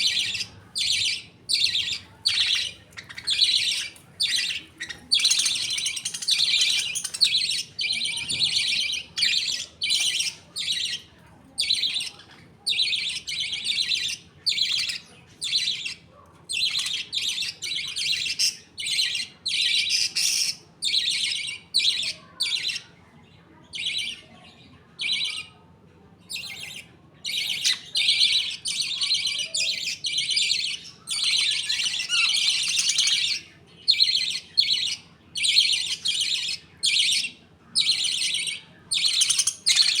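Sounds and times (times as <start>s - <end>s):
budgerigars chattering and chirping: 0.0s - 23.0s, 23.6s - 25.6s, 26.3s - 40.0s.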